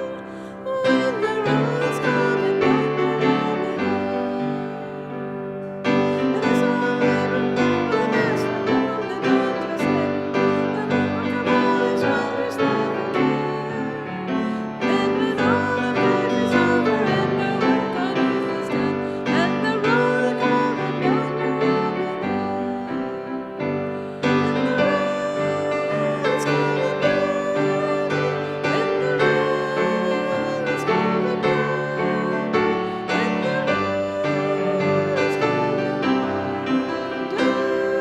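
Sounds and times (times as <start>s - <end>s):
hymn on piano: 0.0s - 38.0s
voices singing: 6.2s - 23.1s, 24.2s - 38.0s.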